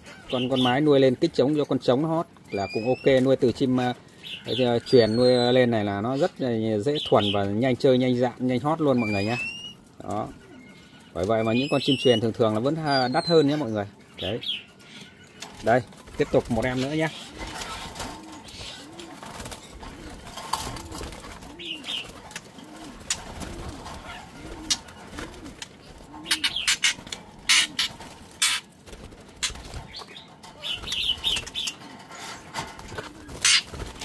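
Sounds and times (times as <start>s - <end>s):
songbirds chirping: 0.0s - 34.0s
wings fluttering: 0.0s - 34.0s
bird cooing: 2.6s - 28.7s, 29.3s - 34.0s
wire cage rattling: 15.4s - 34.0s.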